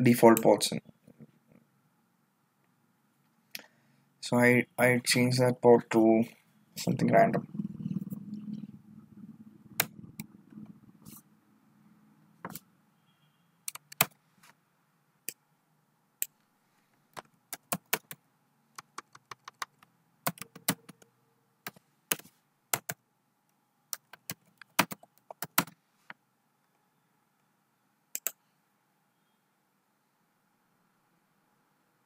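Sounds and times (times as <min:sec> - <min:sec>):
keyboard typing: 0:13.6 - 0:14.2, 0:17.1 - 0:23.0, 0:23.9 - 0:25.8, 0:28.2 - 0:28.4.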